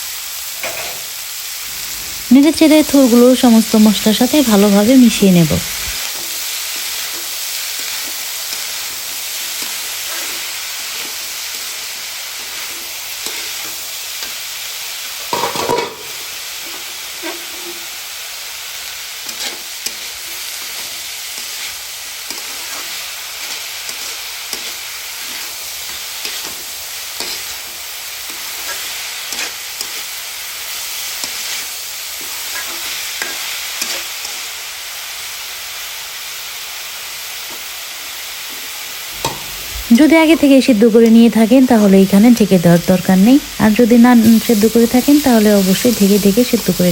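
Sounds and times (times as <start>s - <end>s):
vegetables sizzling in hot oil: 0.0s - 46.9s
spatula scraping a pan: 6.0s - 18.2s, 18.9s - 34.5s.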